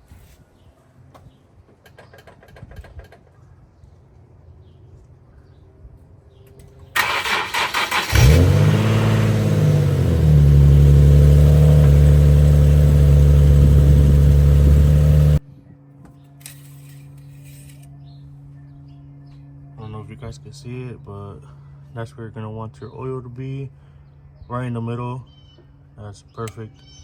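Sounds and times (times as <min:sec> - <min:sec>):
car engine starting and idling: 0:06.9 - 0:15.4.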